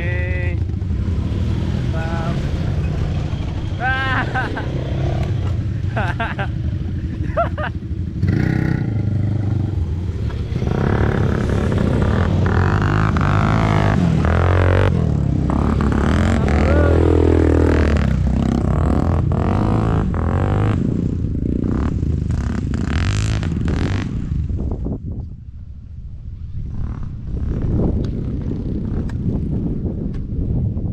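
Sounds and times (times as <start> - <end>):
quad bike engine revving: 0.0 - 24.6.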